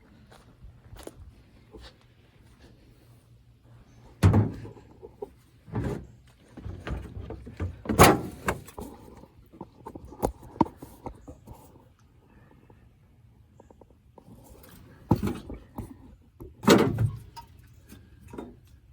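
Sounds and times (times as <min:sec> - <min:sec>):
knocks and clunks on a truck: 0:04.2 - 0:04.8, 0:05.7 - 0:08.8, 0:15.0 - 0:17.4.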